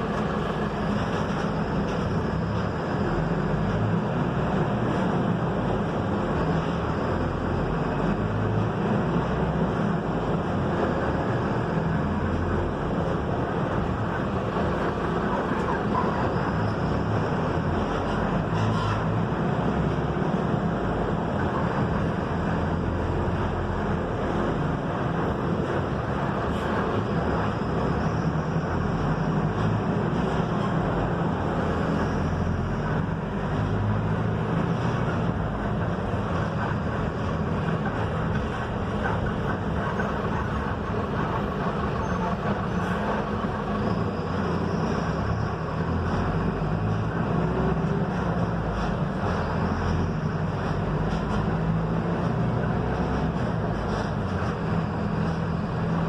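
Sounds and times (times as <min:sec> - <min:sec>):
bus diesel engine running: 0:00.0 - 0:56.0
road and body noise: 0:00.0 - 0:56.0.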